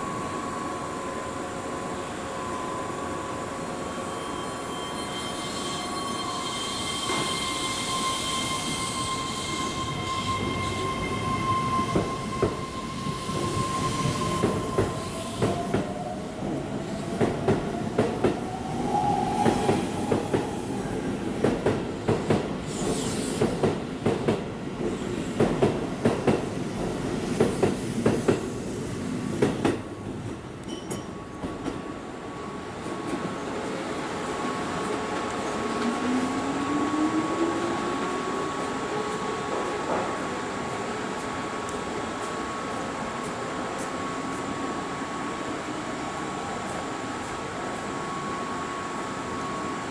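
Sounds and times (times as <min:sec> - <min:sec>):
electric train whine: 0:00.0 - 0:22.0, 0:32.0 - 0:49.9
train wheel squeal: 0:02.3 - 0:16.4, 0:22.6 - 0:23.7.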